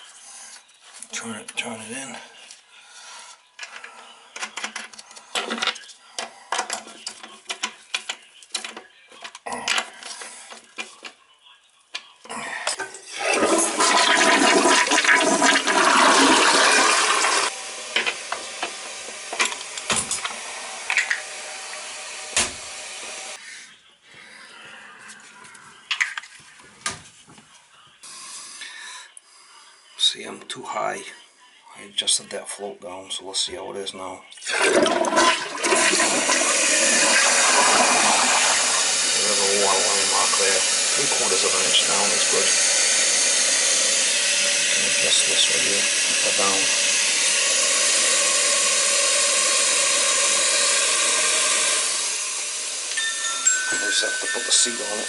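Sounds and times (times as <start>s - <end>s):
toilet flushing: 13.1s - 19.6s, 34.4s - 53.0s
toilet tank refilling hiss: 13.1s - 19.6s, 34.4s - 53.0s.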